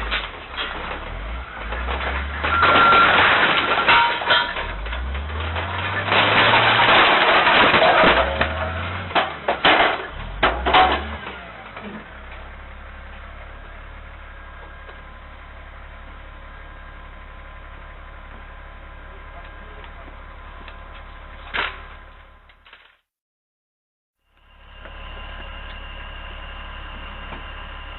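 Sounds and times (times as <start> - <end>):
vehicle collision crunching impacts: 0.0 - 23.0.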